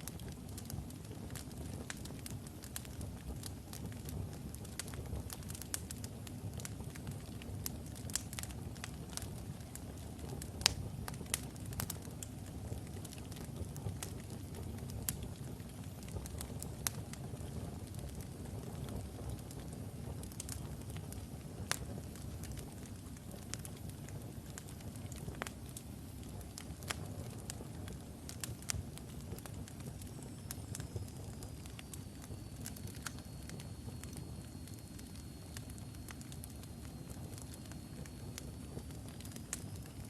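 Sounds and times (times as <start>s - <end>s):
wood fire crackling: 0.0s - 40.0s
faint high whistle: 29.9s - 38.6s.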